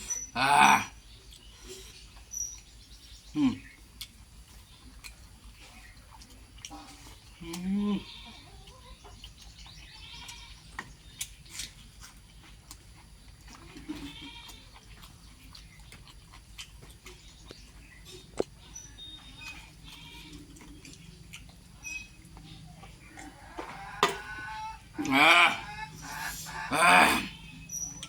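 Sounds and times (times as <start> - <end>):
bleating animal calls: 24.0 - 28.0.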